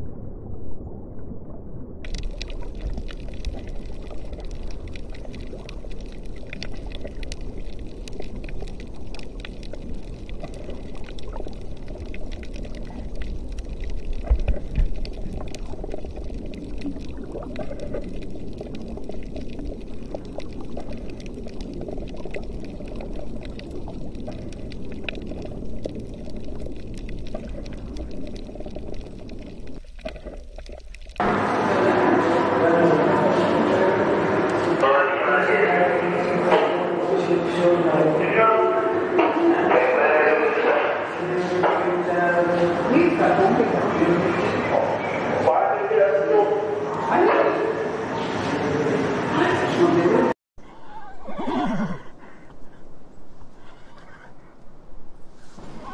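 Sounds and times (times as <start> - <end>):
underwater rush of moving water: 0.0 - 50.4
fine crackle of clicks: 2.0 - 31.2.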